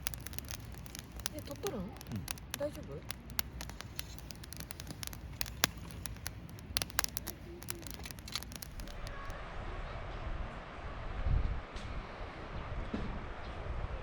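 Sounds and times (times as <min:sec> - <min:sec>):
campfire crackling and popping: 0:00.0 - 0:09.3.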